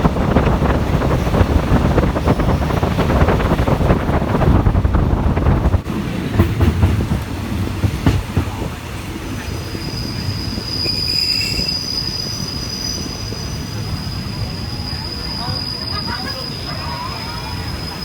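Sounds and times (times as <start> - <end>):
wheels clacking over rail joints: 0.0 - 9.9
train wheels rumbling on rails: 0.0 - 18.0
high-pitched wheel squeal: 9.6 - 18.0.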